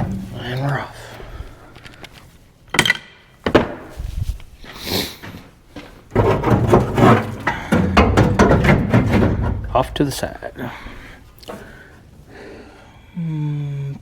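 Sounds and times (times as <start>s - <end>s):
metal tools knocking and clattering: 6.1s - 10.6s.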